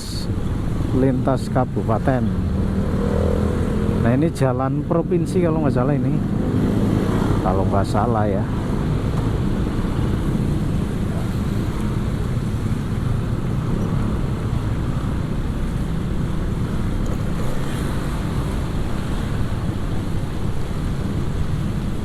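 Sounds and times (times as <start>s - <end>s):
tyres on road: 0.0s - 22.0s
wind rushing over microphone: 0.0s - 22.0s.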